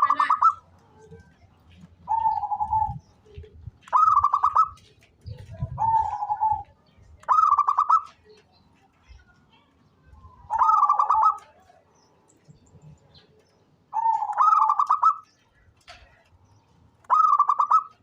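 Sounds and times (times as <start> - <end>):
dove cooing: 2.0 - 4.8, 5.4 - 8.2, 10.5 - 11.6, 13.9 - 15.3, 17.1 - 18.0.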